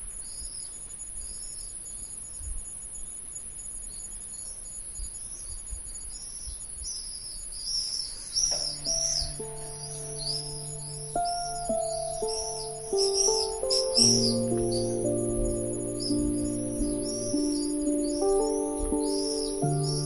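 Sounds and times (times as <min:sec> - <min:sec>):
cricket trill: 0:00.0 - 0:20.0
birds chirping: 0:03.9 - 0:20.0
soft synth chords: 0:08.7 - 0:20.0.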